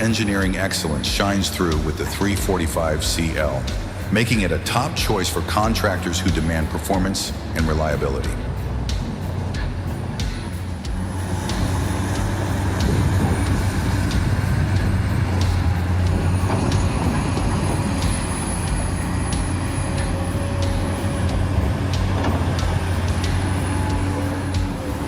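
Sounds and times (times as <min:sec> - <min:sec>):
diesel engine droning: 0:00.0 - 0:25.0
machinery clicks and knocks: 0:09.2 - 0:25.0.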